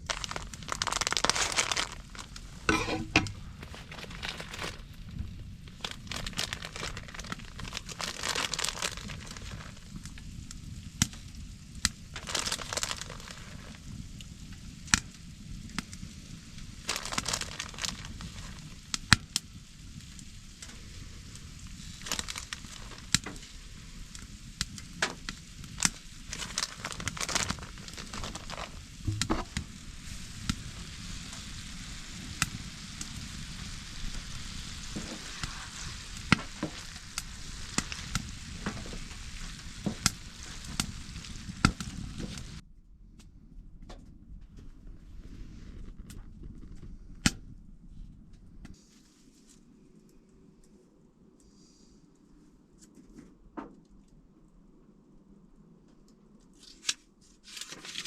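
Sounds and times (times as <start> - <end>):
stirring and handling rustles: 0.0 - 5.1, 26.2 - 30.2.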